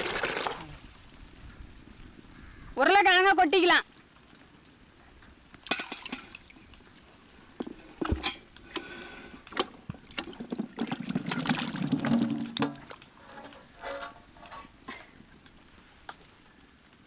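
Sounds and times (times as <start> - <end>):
potatoes splashing into water: 5.6 - 6.9.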